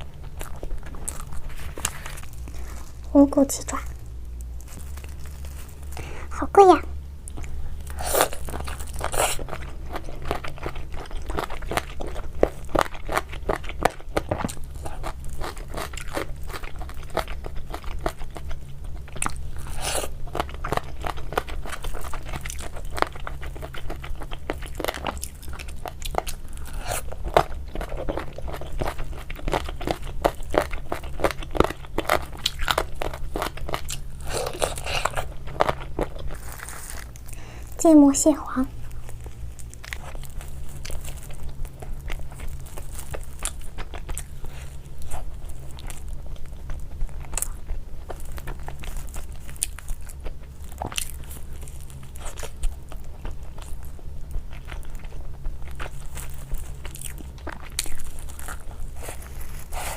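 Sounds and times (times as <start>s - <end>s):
chewing crisp food: 0.0s - 59.9s.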